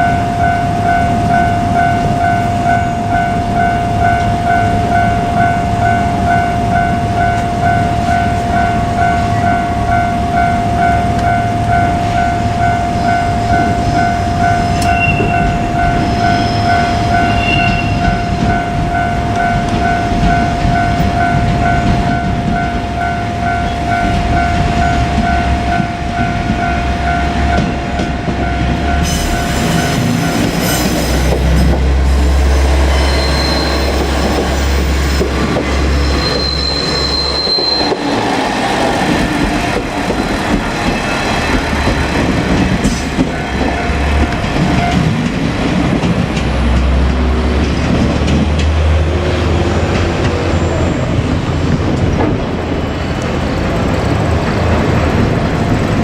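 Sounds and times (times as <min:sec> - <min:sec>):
diesel railcar engine rumble: 0:00.0 - 0:56.0
level crossing warning bell: 0:00.0 - 0:56.0
wheel noise on rails: 0:00.0 - 0:56.0
wheel squeal: 0:14.6 - 0:18.4, 0:29.0 - 0:42.0.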